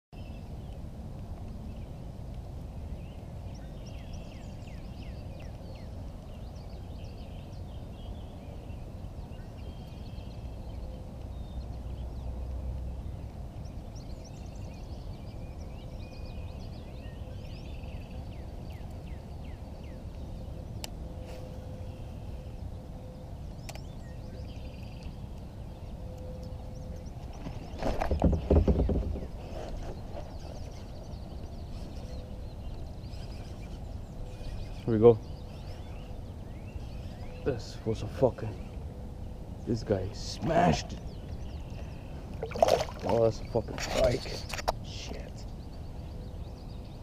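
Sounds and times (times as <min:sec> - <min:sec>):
birds singing and chirping: 0:00.2 - 0:47.0.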